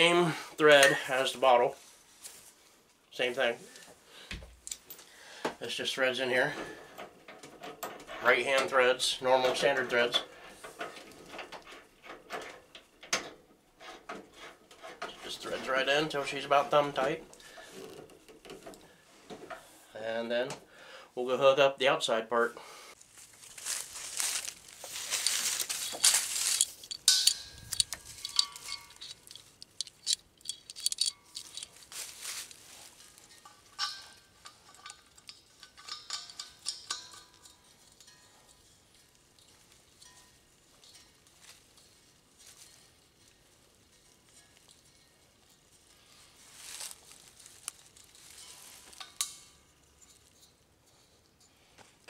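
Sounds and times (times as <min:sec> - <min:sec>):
rustling handling noise: 0:01.3 - 0:04.1, 0:23.0 - 0:52.0
metal fittings clinking: 0:24.2 - 0:51.6.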